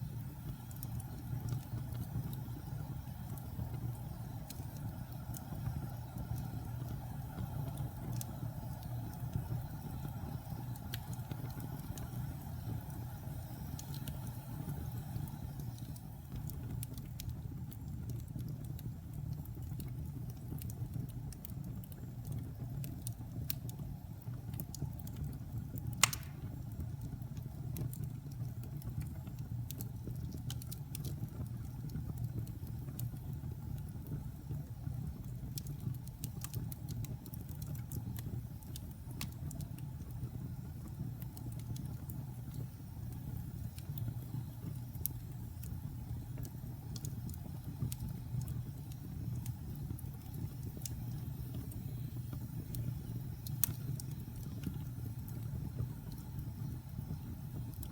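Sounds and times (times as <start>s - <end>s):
wood fire crackling: 0.0s - 57.9s
loud pop from fire: 26.0s - 26.7s.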